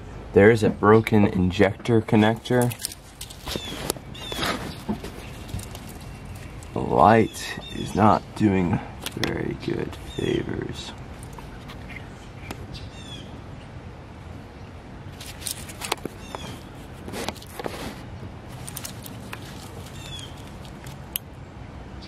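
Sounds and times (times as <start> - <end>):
steady low hum: 0.0 - 22.0
bird chirping: 2.3 - 8.4, 10.0 - 13.8, 14.5 - 17.0, 18.5 - 21.5
sharp clicks and knocks: 15.2 - 17.7.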